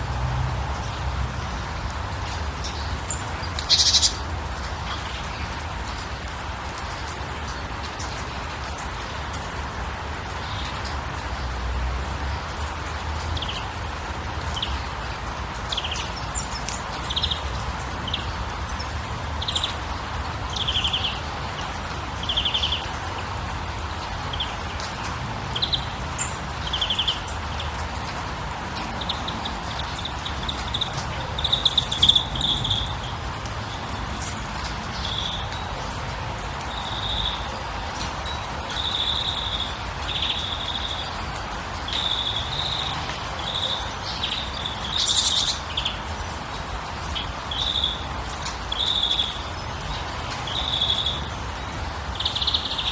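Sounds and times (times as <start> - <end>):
birds chirping: 2.5 - 5.6, 23.9 - 52.9.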